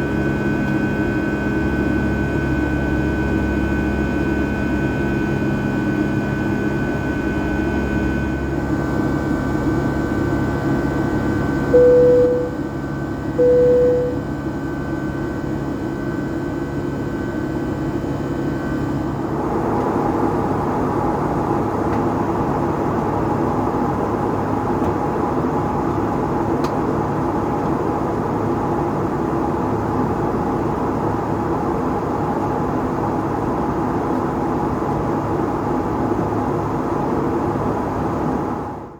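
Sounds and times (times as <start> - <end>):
airplane cabin engine drone: 0.0 - 38.9
cabin chime tones: 11.8 - 12.6, 13.4 - 14.2.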